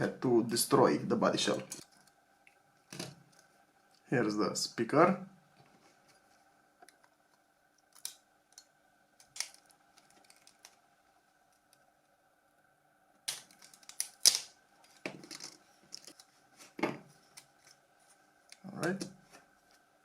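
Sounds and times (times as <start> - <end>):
faint steady hum: 0.0 - 20.0
plastic parts clicking: 7.9 - 10.8, 13.3 - 16.3
plastic parts scraping: 9.2 - 10.8, 13.3 - 17.8.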